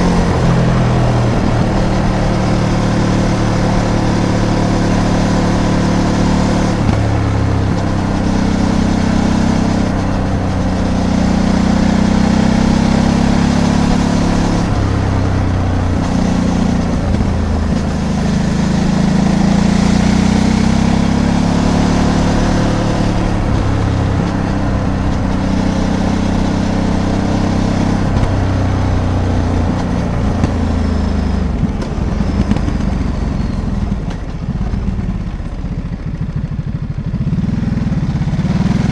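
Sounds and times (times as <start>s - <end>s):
wind rush: 0.0s - 4.9s
motorcycle engine revving: 0.0s - 38.9s
road noise: 0.0s - 38.9s.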